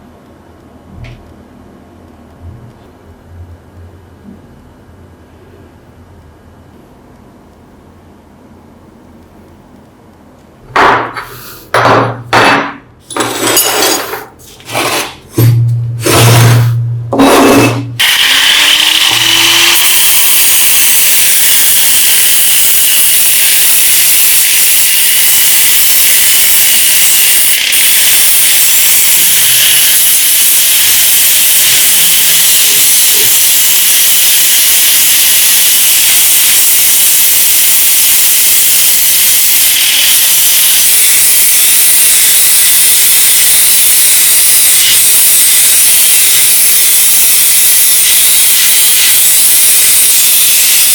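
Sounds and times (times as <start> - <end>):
compressed-air tool hissing: 11.2 - 11.7.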